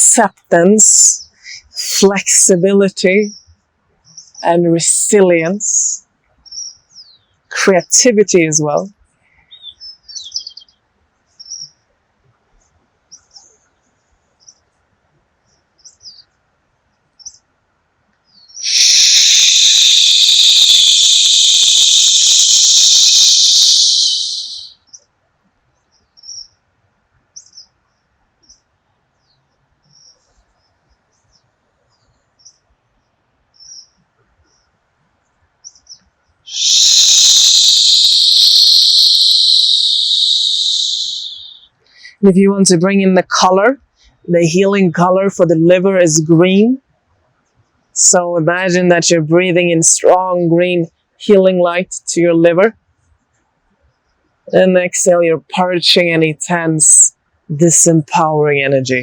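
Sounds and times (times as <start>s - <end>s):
faint bird chirps: 9.4s - 10.8s, 11.4s - 11.8s, 18.3s - 25.0s, 25.8s - 26.6s, 27.4s - 34.8s, 35.6s - 42.3s.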